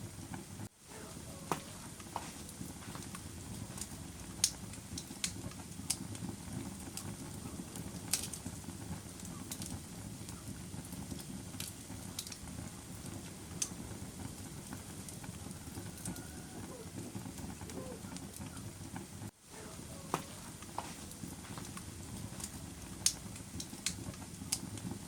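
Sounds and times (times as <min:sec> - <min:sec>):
fire crackling and popping: 0:00.0 - 0:25.0
fire rumbling in fireplace: 0:00.0 - 0:25.0.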